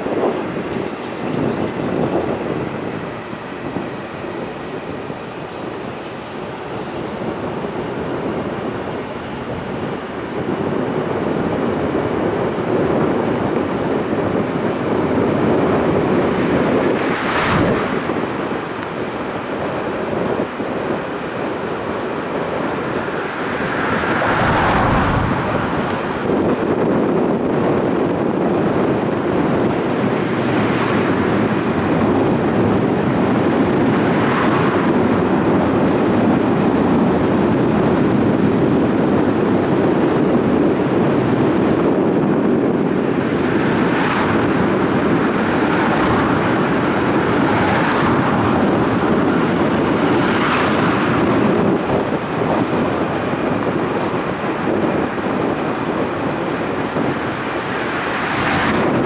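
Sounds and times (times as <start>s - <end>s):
wind on microphone: 0.0s - 59.0s
vehicles passing: 6.4s - 59.0s
water rushing: 21.1s - 27.1s, 43.9s - 51.3s.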